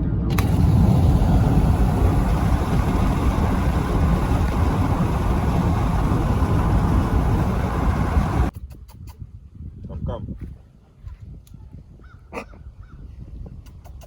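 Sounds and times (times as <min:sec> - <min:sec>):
vehicle engine and road rumble: 0:00.0 - 0:08.5.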